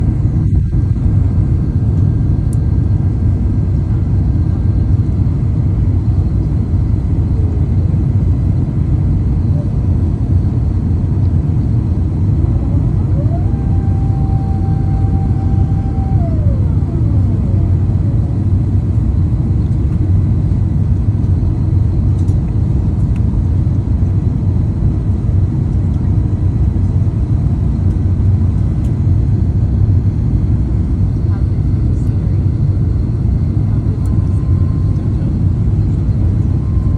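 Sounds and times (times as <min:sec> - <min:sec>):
airliner engine rumble: 0:00.0 - 0:36.9
faint rising whine: 0:11.6 - 0:18.9.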